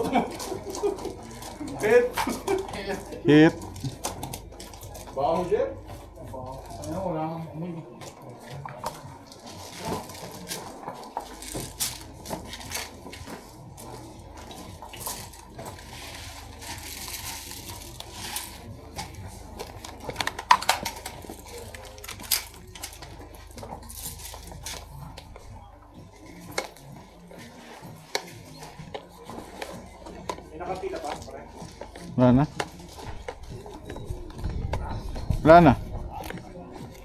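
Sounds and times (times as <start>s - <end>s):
pellets striking cover: 8.0s - 35.1s.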